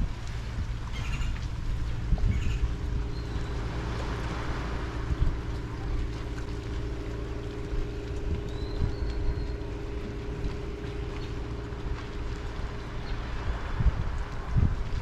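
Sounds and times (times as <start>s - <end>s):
boat motor humming: 0.0s - 15.0s
wind and water rumble: 0.0s - 15.0s
bird squawking: 0.9s - 1.4s, 2.3s - 3.5s.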